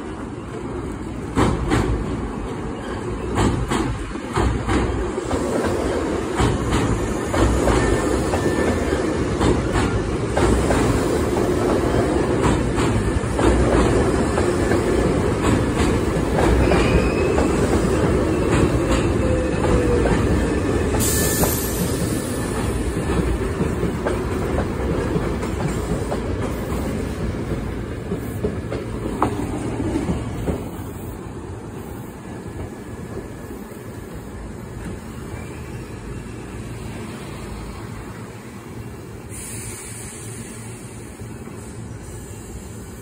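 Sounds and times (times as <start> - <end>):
electric train running on track: 0.0 - 43.0
wheel squeal: 16.6 - 20.0
short hiss: 39.3 - 42.9.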